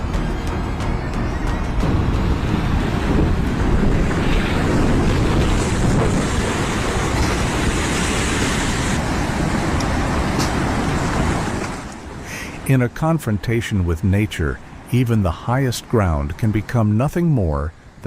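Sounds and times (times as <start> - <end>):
floodwater rushing: 0.0 - 18.0
wind buffeting microphone: 1.6 - 12.2.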